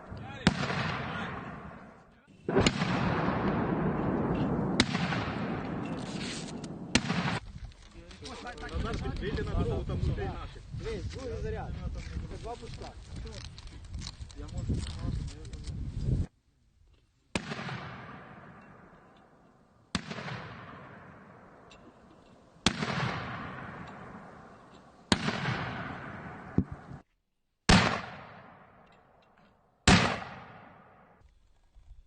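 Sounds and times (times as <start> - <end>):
mortar blasts with rolling echo: 0.0 - 7.5, 17.3 - 19.1, 19.8 - 27.0, 27.7 - 28.8, 29.8 - 31.2.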